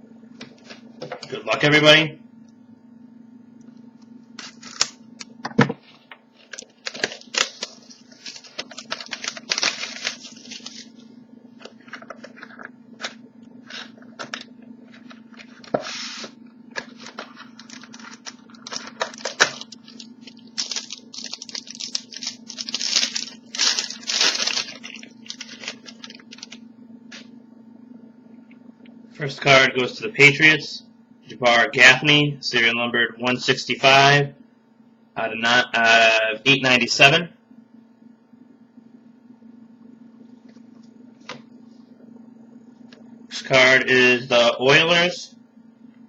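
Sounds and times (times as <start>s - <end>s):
steady low hum: 0.0s - 46.0s
packaging tearing and crinkling: 4.4s - 5.0s, 6.4s - 11.0s, 15.4s - 26.6s.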